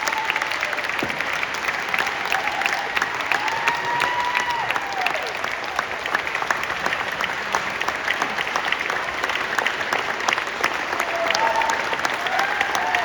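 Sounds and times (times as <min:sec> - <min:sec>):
audience applauding: 0:00.0 - 0:13.0
person whooping: 0:02.3 - 0:05.4, 0:11.0 - 0:13.0.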